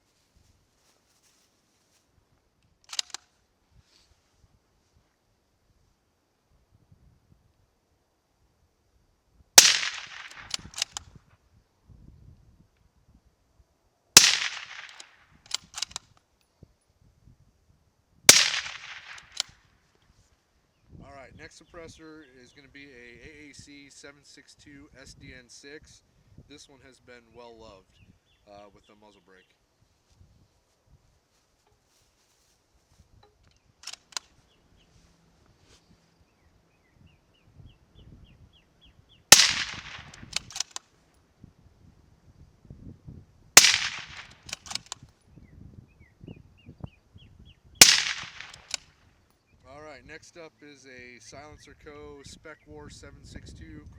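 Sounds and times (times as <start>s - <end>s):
sharp metallic clicks: 2.7s - 3.3s, 9.6s - 11.1s, 14.2s - 16.2s, 18.3s - 19.6s, 33.3s - 34.4s, 39.3s - 40.9s, 43.6s - 45.1s, 47.8s - 48.9s
rifle shots: 9.6s - 11.0s, 14.2s - 16.0s, 18.3s - 19.5s, 39.3s - 40.8s, 43.6s - 45.0s, 47.8s - 48.8s.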